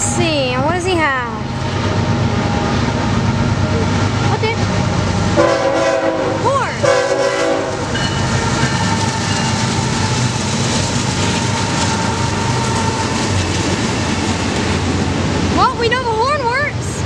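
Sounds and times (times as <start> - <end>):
freight train rumble and wheel clatter: 0.0 - 17.0
train horn chord: 5.4 - 8.2.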